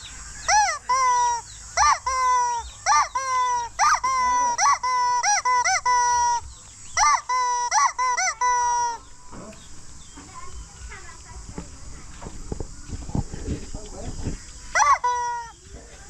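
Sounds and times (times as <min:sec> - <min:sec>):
rubber chicken toy squealing: 0:00.4 - 0:09.0, 0:14.7 - 0:15.6.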